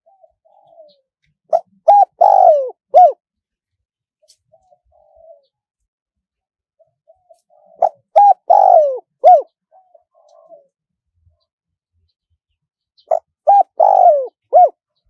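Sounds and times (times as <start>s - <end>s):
dove cooing: 0.0s - 3.2s, 4.2s - 5.6s, 6.8s - 10.8s, 13.0s - 14.8s.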